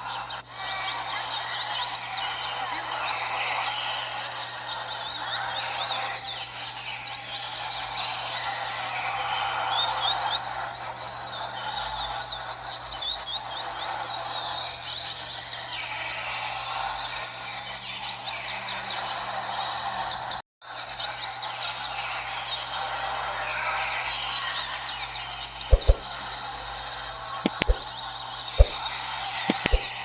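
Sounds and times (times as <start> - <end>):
birds chirping: 25.0 - 26.8, 27.5 - 30.0.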